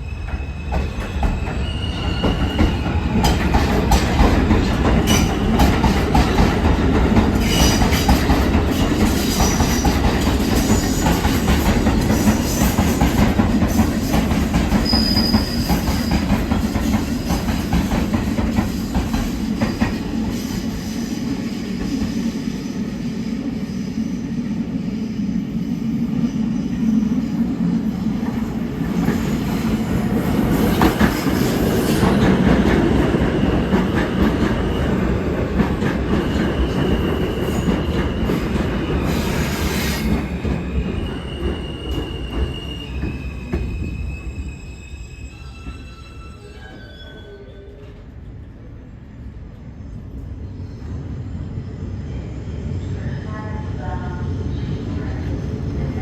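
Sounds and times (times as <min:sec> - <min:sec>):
subway wheels clacking: 0:00.0 - 0:23.4, 0:26.8 - 0:47.2
train rumble: 0:00.0 - 0:44.5
high wheel squeals: 0:14.8 - 0:16.3, 0:41.0 - 0:47.8.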